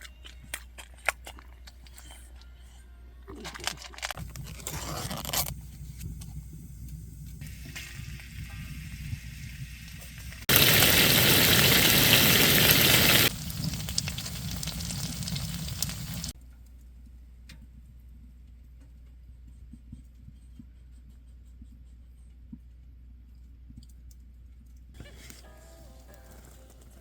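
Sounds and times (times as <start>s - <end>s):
food sizzling in a pan: 7.4s - 16.4s.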